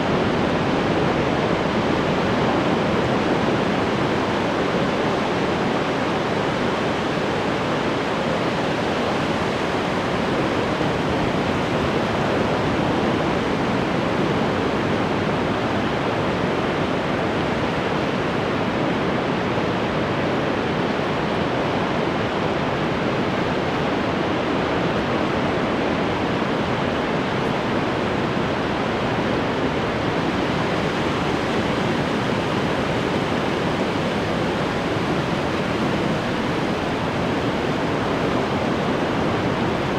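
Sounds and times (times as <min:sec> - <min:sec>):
ocean waves breaking: 0:28.1 - 0:39.9.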